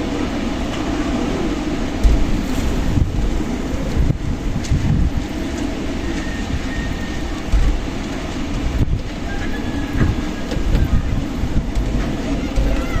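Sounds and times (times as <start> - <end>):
strong gusty wind: 0.0 - 13.0
wind buffeting microphone: 0.0 - 13.0
faint high whistles: 6.0 - 7.4.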